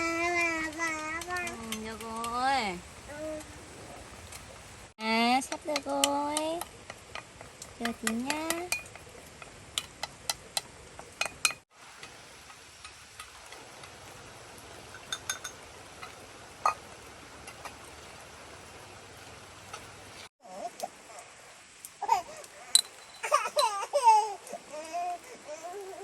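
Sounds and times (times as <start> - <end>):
faint steady hiss: 0.0 - 26.0
dishes and utensils clinking: 14.9 - 16.8, 22.8 - 23.7.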